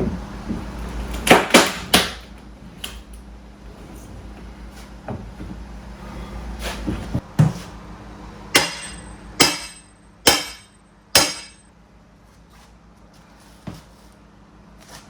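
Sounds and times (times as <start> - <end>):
hammer strikes ringing: 8.5 - 11.7.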